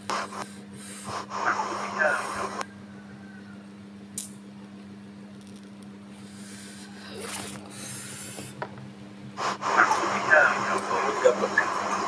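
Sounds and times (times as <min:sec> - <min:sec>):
train carriage hum: 0:00.0 - 0:12.0.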